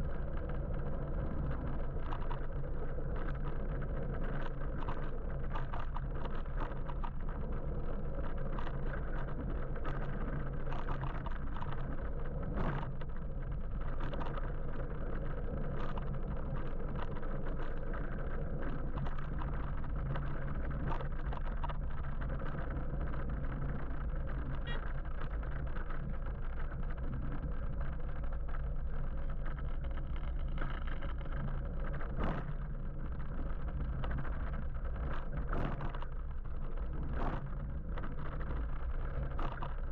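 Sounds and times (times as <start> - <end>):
faint ticks: 0.0 - 39.9
road noise rumble: 0.0 - 39.9.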